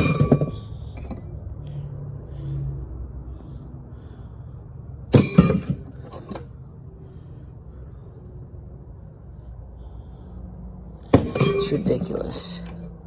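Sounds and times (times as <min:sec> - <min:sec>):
metal engine parts clinking: 0:00.0 - 0:01.4, 0:05.1 - 0:06.6, 0:11.0 - 0:13.0.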